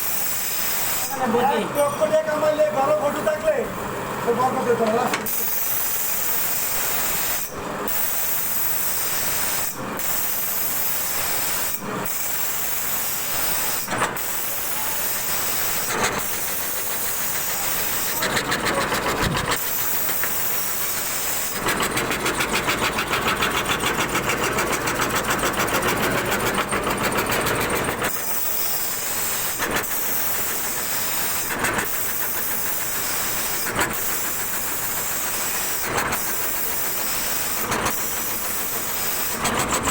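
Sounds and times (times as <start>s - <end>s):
fast even rattle: 15.9s - 28.1s.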